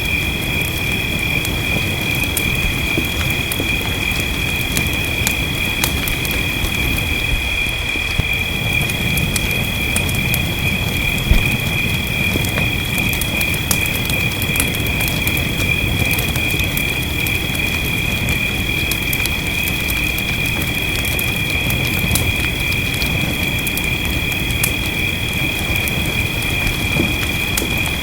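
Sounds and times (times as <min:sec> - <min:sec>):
wood fire crackling and popping: 0:00.0 - 0:28.0
low rumble: 0:01.1 - 0:13.3
low thump: 0:11.3 - 0:11.8.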